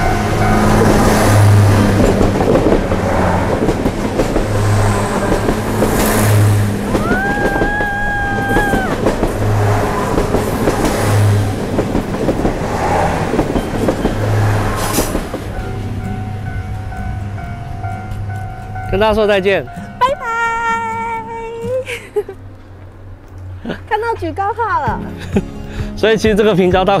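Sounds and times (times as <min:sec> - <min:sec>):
wheels clattering: 0:00.0 - 0:20.1
train carriages rumbling past: 0:00.0 - 0:27.0.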